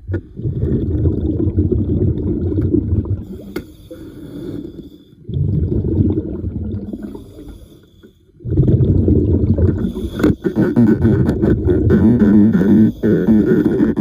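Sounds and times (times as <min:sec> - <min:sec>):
bubbling exhale underwater: 0:00.0 - 0:07.7, 0:08.3 - 0:14.0
hissing inhale through regulator: 0:03.2 - 0:05.4, 0:06.9 - 0:08.5, 0:09.7 - 0:11.1, 0:12.1 - 0:14.0.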